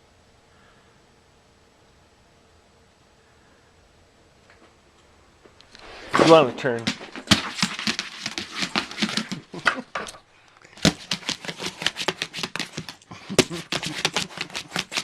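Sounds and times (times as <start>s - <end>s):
pet claws clicking on hard floor: 5.7s - 10.2s, 10.8s - 15.0s.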